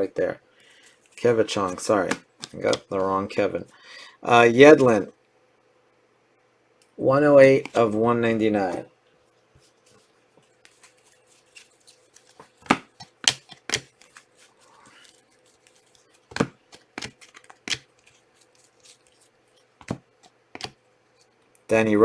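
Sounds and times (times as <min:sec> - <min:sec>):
soft rustle of card: 0:00.6 - 0:03.7, 0:07.4 - 0:21.5
cards snapping and tapping on table: 0:12.6 - 0:14.2, 0:16.3 - 0:17.9, 0:19.8 - 0:20.0, 0:20.6 - 0:20.8.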